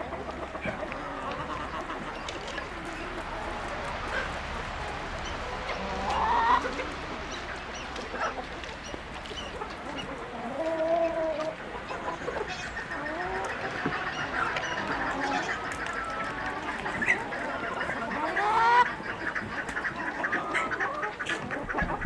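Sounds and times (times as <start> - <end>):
poultry calling: 0.0 - 22.0.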